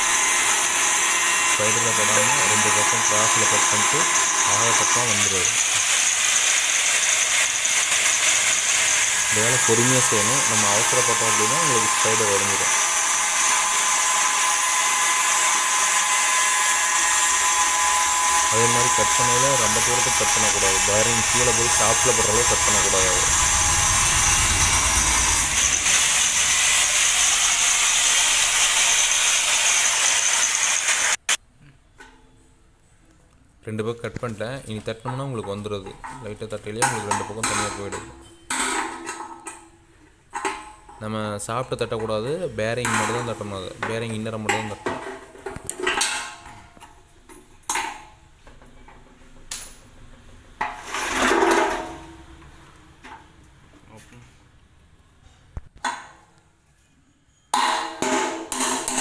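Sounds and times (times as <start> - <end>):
abrasive disc grinding metal: 0.0 - 31.2.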